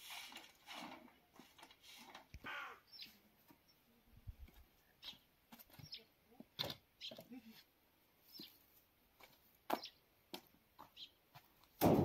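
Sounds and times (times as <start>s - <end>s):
bird chirps and calls: 2.4s - 3.8s, 5.0s - 6.2s, 9.8s - 10.0s, 10.9s - 11.2s.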